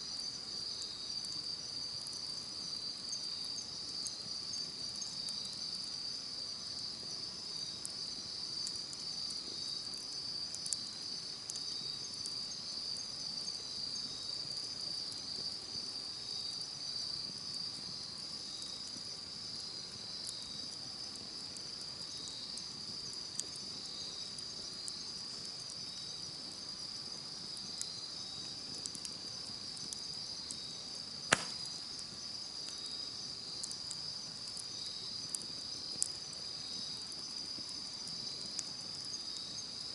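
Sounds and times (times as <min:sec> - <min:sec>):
campfire crackling: 0:00.0 - 0:39.9
insects chirring: 0:00.0 - 0:39.9.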